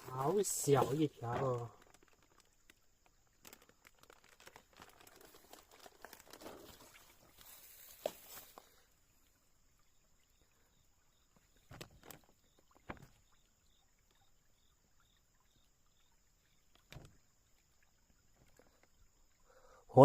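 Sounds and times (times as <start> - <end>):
faint knocks or rustles: 5.2 - 8.8, 11.4 - 13.3, 16.7 - 17.3.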